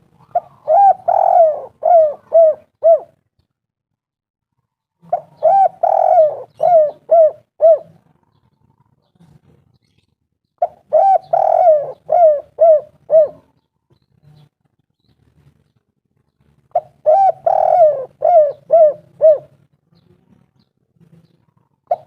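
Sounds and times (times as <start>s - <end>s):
dove cooing: 0.0s - 3.2s, 5.0s - 8.2s, 10.6s - 13.6s, 16.7s - 19.6s, 21.6s - 22.0s.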